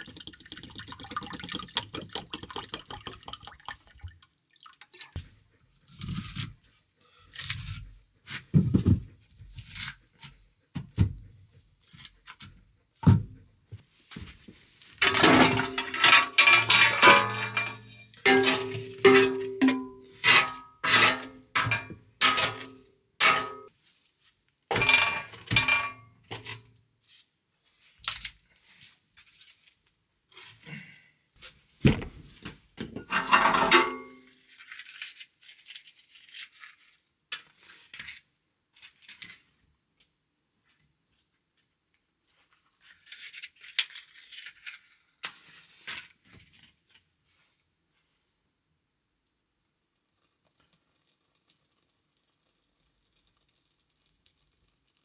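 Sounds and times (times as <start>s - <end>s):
pots and utensils clinking: 15.0s - 23.7s, 24.7s - 26.1s, 32.8s - 34.3s.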